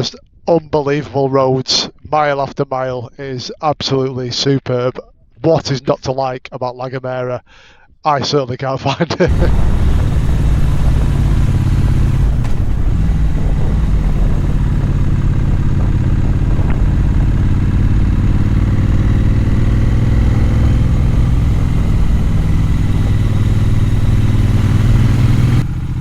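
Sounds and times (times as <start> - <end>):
motorcycle engine droning: 9.3 - 26.0.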